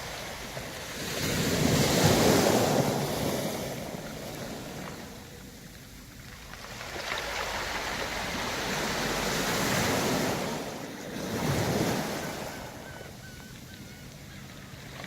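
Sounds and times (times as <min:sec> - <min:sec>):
waves washing on pebble beach: 0:00.0 - 0:12.9
pebbles rolling in surf: 0:00.2 - 0:10.5.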